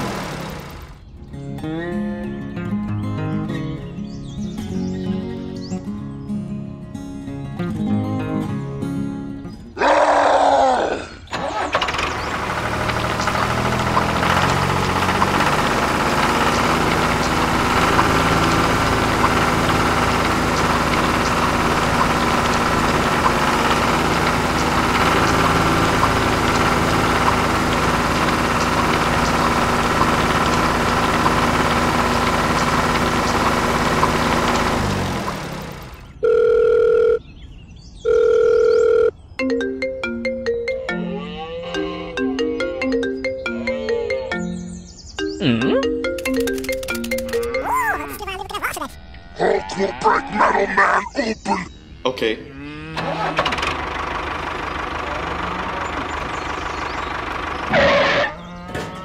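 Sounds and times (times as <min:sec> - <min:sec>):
tractor engine running: 0:00.0 - 0:01.2, 0:11.3 - 0:37.2, 0:46.0 - 0:49.4, 0:53.0 - 0:59.0
telephone ringing: 0:36.2 - 0:37.2, 0:38.0 - 0:39.2, 0:45.9 - 0:48.6.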